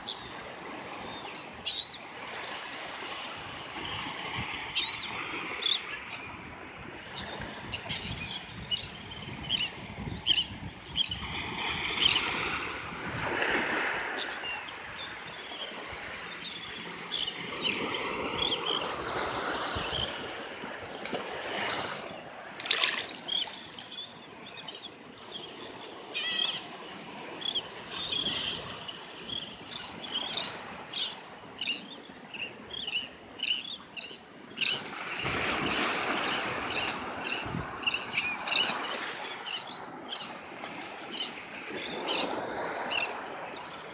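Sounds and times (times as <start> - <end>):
water splashing and trickling: 20.6 - 24.1.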